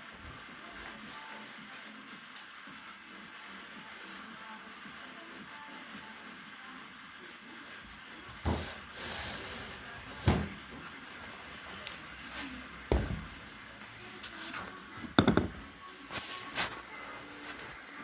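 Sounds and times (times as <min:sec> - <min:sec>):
knocks of objects being handled: 0:12.9 - 0:13.4, 0:15.0 - 0:15.7.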